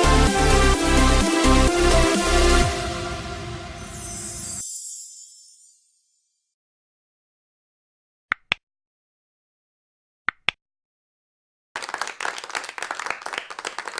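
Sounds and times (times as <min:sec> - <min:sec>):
applause: 0:11.8 - 0:13.9.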